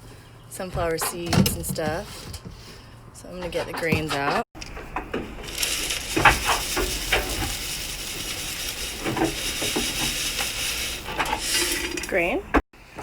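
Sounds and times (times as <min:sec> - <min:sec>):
grain being poured: 0:05.3 - 0:12.3.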